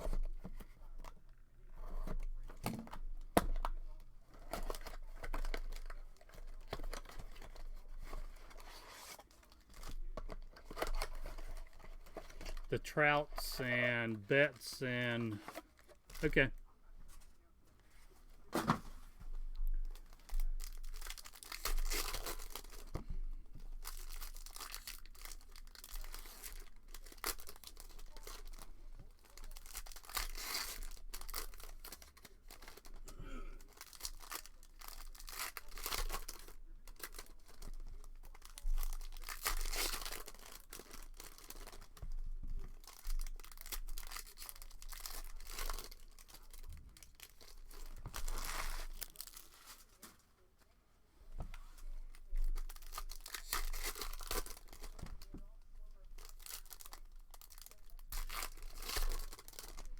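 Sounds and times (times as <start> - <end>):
card pack wrappers tearing: 20.2 - 22.9, 23.8 - 33.0, 33.6 - 42.0, 42.6 - 50.1, 52.5 - 55.3, 56.2 - 59.9.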